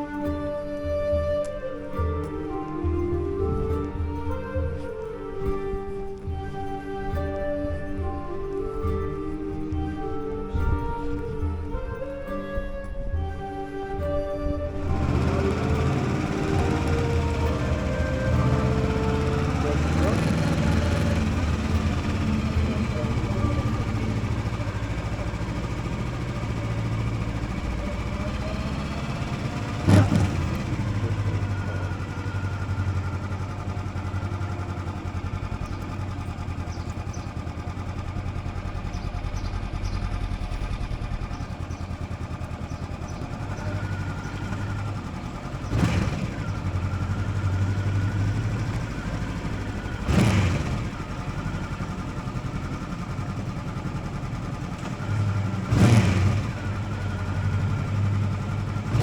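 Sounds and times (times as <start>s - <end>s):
motorcycle engine accelerating: 0.0s - 59.0s
loud bursts of noise: 14.8s - 32.6s.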